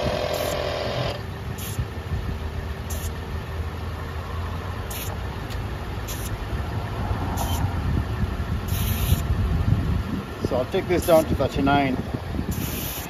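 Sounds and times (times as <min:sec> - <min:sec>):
air compressor humming: 0:00.0 - 0:13.0.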